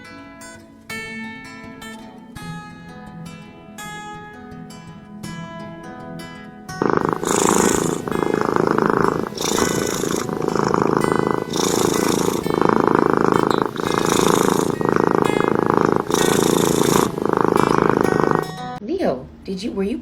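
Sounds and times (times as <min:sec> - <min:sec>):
cat purring loudly: 0:06.8 - 0:18.8.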